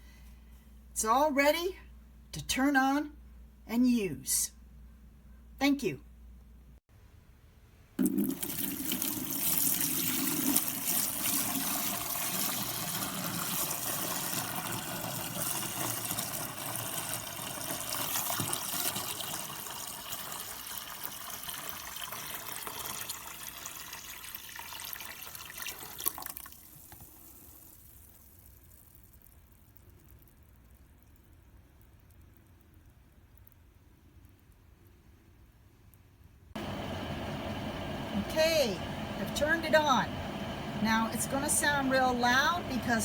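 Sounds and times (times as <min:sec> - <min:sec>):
water pouring into tank: 0:08.0 - 0:29.2.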